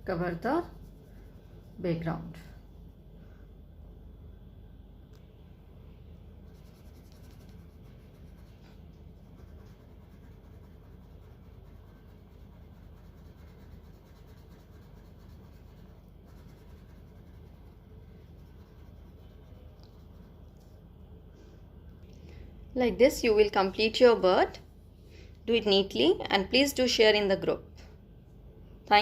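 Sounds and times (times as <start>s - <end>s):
steady low hum: 0.0s - 29.0s
crayon scratching on paper: 6.5s - 8.6s, 9.2s - 20.4s.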